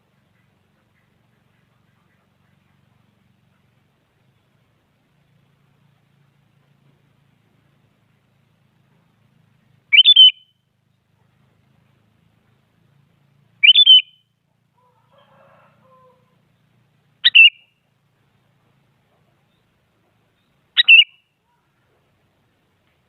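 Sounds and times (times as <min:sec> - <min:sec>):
bulbul calling: 0:09.9 - 0:11.4, 0:13.6 - 0:15.0, 0:17.2 - 0:17.8, 0:19.2 - 0:21.9.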